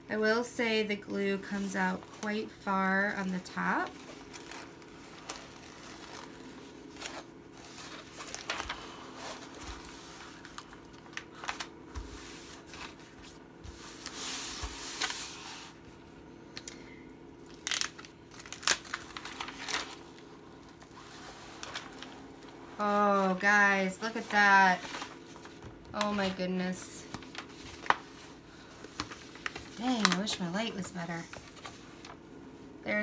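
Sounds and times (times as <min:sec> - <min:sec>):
plastic film crinkling: 0:01.4 - 0:15.8, 0:17.4 - 0:32.2.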